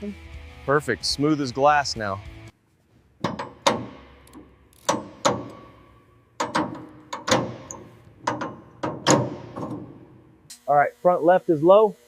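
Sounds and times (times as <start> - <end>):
sharp ringing knocks: 3.2 - 10.3.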